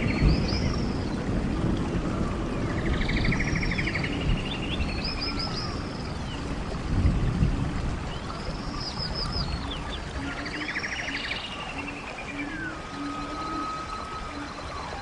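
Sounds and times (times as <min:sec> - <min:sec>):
birds calling: 0:08.1 - 0:15.0.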